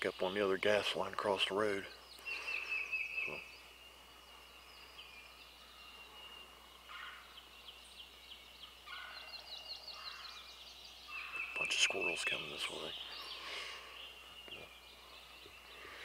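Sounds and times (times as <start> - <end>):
low rattling bird calls: 0.0 - 16.0
high bird trill: 4.7 - 16.0.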